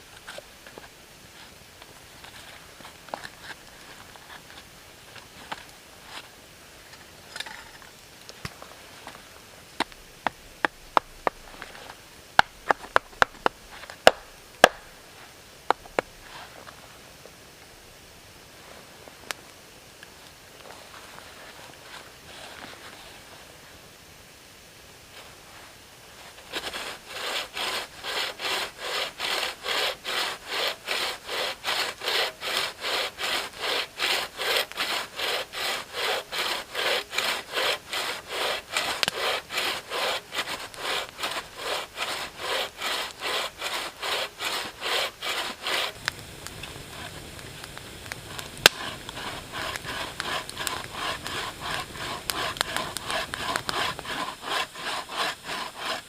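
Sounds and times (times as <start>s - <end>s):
hand saw cutting wood: 26.4s - 46.2s, 48.0s - 56.0s.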